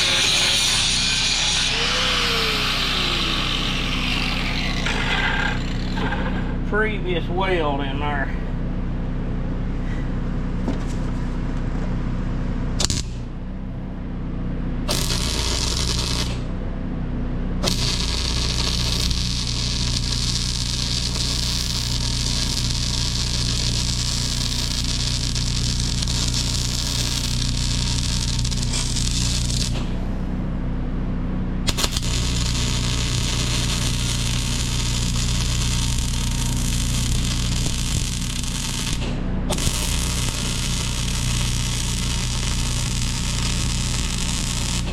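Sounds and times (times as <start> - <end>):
arc welding crackling hiss: 0.0 - 6.5, 12.8 - 13.2, 14.9 - 16.5, 17.6 - 30.0, 31.7 - 44.9
steady engine hum: 0.0 - 44.9.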